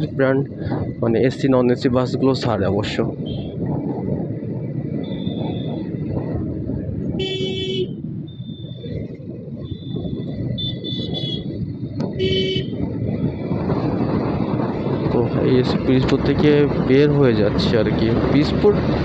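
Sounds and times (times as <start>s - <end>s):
wind and road rumble: 0.0s - 19.0s
vehicle horn honking: 7.2s - 8.0s, 10.6s - 11.5s, 12.1s - 12.8s.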